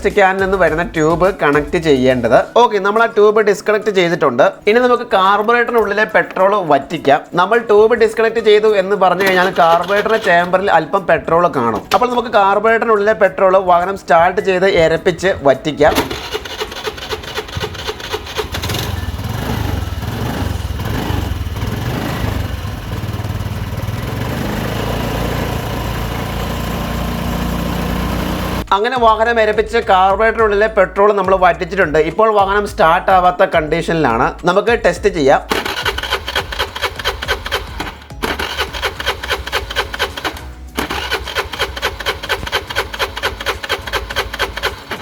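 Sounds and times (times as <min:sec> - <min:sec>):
scooter starter cranking: 0:08.0 - 0:12.7, 0:14.2 - 0:28.7, 0:35.5 - 0:45.0
scooter engine revving and idling: 0:09.1 - 0:10.7, 0:15.9 - 0:28.7, 0:35.5 - 0:45.0.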